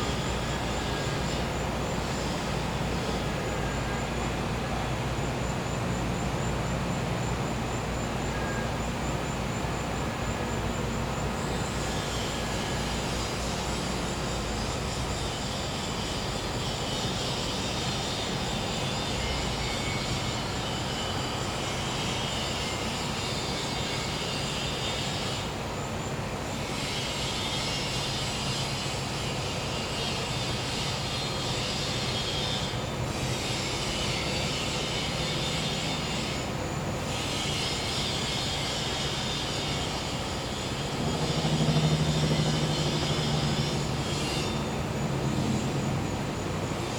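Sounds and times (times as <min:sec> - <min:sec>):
cicadas and crickets chorus: 0:00.0 - 0:46.9
generator humming: 0:40.1 - 0:46.9.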